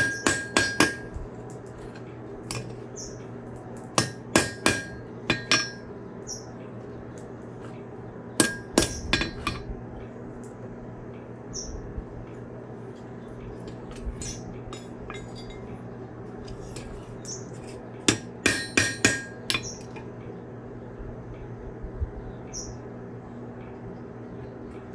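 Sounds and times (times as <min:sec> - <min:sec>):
hammer striking metal on anvil: 0:00.0 - 0:01.2, 0:04.0 - 0:05.9, 0:08.4 - 0:09.7, 0:18.1 - 0:19.9.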